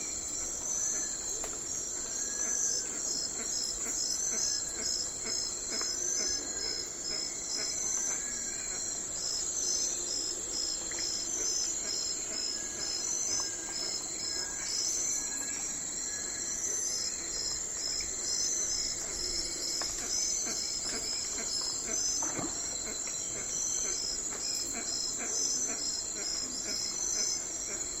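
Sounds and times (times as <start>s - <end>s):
crickets chirping: 0.0s - 28.0s
insect chorus: 0.0s - 28.0s.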